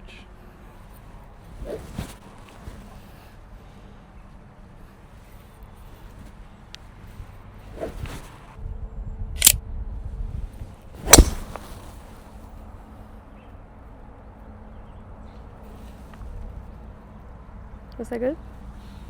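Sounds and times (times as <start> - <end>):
golf club striking ball: 11.0 - 11.7.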